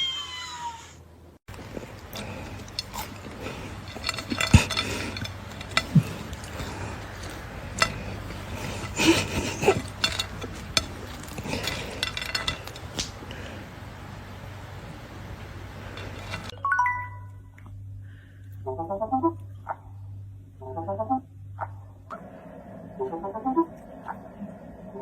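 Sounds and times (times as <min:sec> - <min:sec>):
low steady hum: 0:00.0 - 0:25.0
hard objects clinking and clattering: 0:01.5 - 0:13.4, 0:15.8 - 0:16.6.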